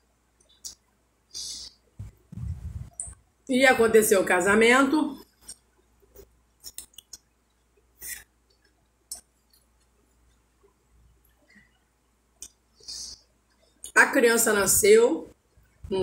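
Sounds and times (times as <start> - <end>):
fingers mixing food on a plate: 5.2 - 11.5
soft chewing smacks: 5.2 - 11.8.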